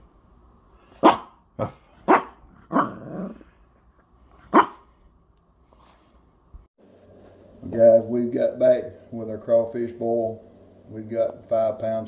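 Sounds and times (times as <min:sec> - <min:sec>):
dog barking: 0:01.0 - 0:03.4, 0:04.4 - 0:04.9.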